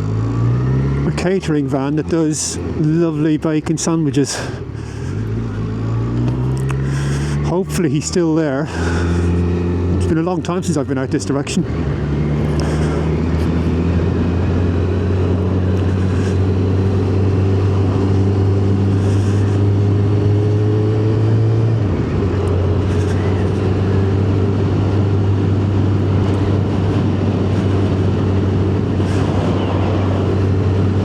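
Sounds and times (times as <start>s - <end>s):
motorcycle engine running: 0.0s - 31.0s
wind rush: 23.5s - 31.0s.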